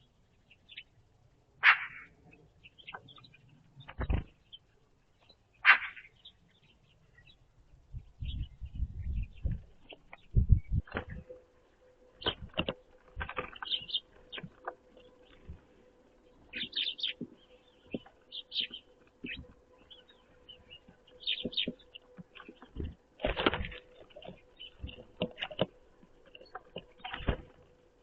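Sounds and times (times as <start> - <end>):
small birds chirping: 0.0 - 28.0
wing flutters and knocks: 3.8 - 4.4, 9.4 - 11.4, 12.1 - 28.0.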